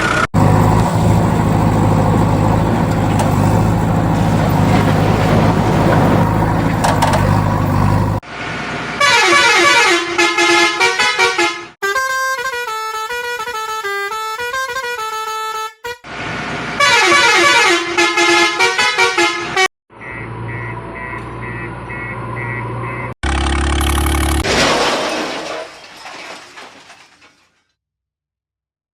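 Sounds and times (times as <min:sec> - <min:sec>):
low engine hum: 0:00.1 - 0:08.2.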